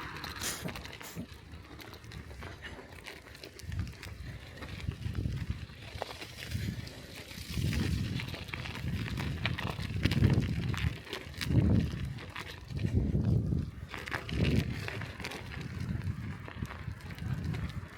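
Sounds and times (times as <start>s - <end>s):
bicycle tyres crackling on snow: 0.0s - 17.9s
wind buffeting microphone: 3.6s - 17.9s.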